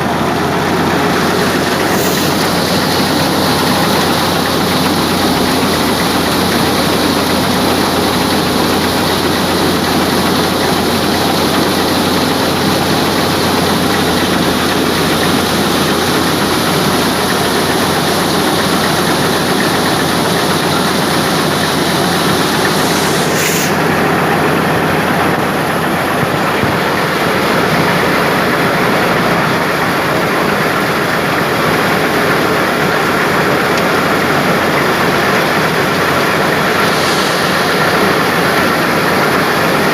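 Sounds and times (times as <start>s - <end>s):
thresher and tractor engine running: 0.0s - 39.9s.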